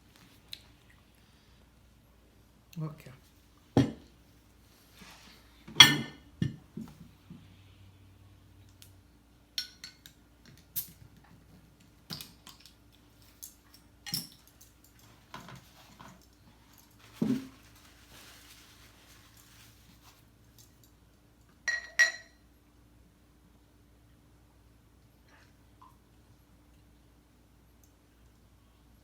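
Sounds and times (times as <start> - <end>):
cutlery and dishes clinking: 5.8 - 6.2.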